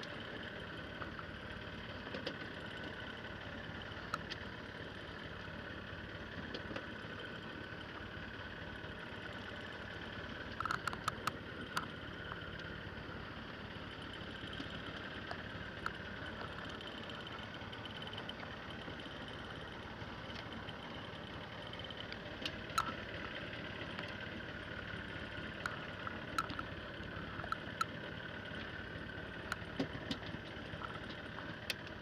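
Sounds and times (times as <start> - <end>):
motor humming: 10.2 - 31.9
sharp clicks: 10.5 - 11.9, 22.4 - 23.4, 25.6 - 28.0.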